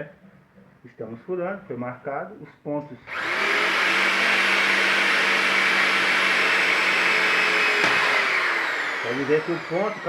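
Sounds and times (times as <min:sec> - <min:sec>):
electric drill boring into steel: 0:03.1 - 0:10.0.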